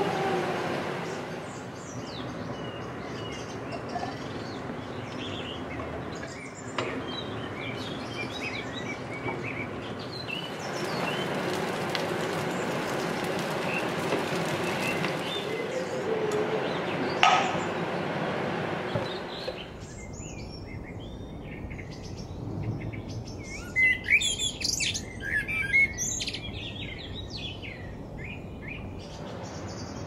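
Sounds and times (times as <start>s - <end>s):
bird chirps: 1.0s - 11.4s, 18.9s - 30.0s.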